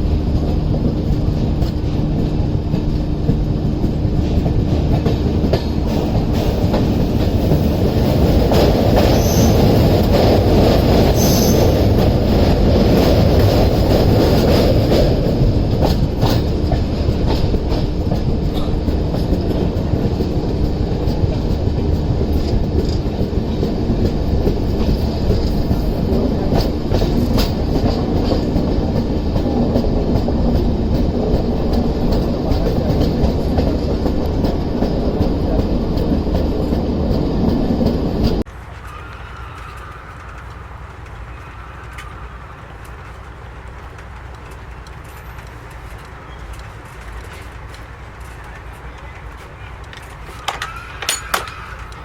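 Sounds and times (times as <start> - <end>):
train rumbling on rails: 0.0 - 52.0
wheels clicking over rail joints: 0.0 - 52.0
high wheel squeals: 8.9 - 10.2, 11.0 - 12.2, 38.6 - 43.0, 49.6 - 52.0.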